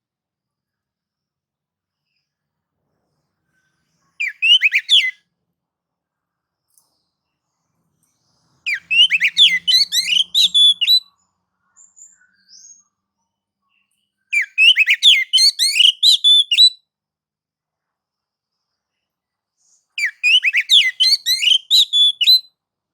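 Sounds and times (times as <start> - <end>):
bird singing whistled notes: 4.2 - 5.2, 8.7 - 11.1, 14.3 - 16.8, 20.0 - 22.5.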